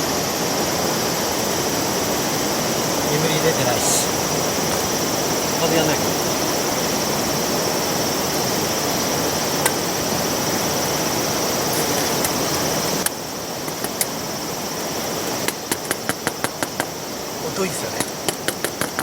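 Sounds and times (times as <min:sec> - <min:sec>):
sharp taps: 0:11.8 - 0:14.2, 0:15.4 - 0:17.0, 0:18.0 - 0:19.0.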